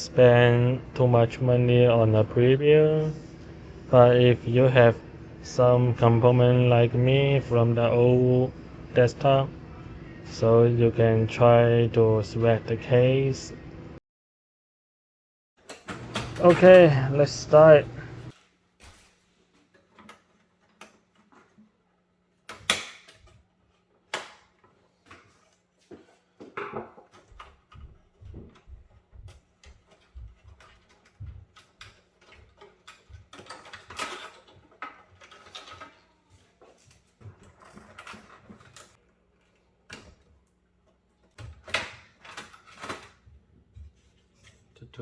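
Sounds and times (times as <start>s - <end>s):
computer parts being handled: 29.4s - 39.7s.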